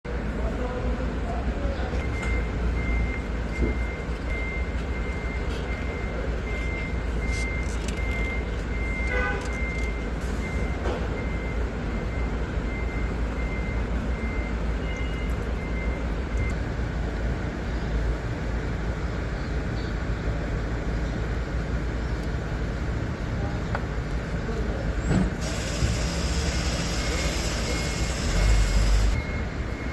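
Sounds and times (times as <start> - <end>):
bus engine rumbling: 0.1 - 29.9
high electronic beeps: 2.0 - 16.6, 25.4 - 29.9.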